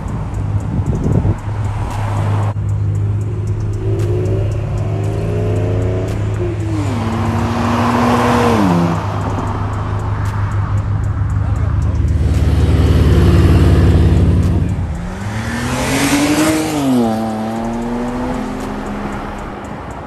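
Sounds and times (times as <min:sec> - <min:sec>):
idling engine rumble: 0:00.0 - 0:08.0, 0:09.0 - 0:15.6
loud rush of exhaust: 0:00.0 - 0:19.8
car engine revving: 0:00.0 - 0:20.0.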